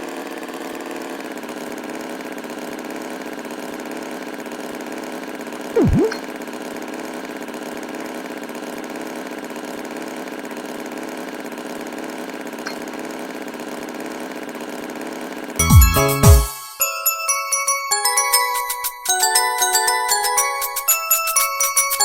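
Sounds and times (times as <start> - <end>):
swooping falling sound effect: 5.8 - 6.2.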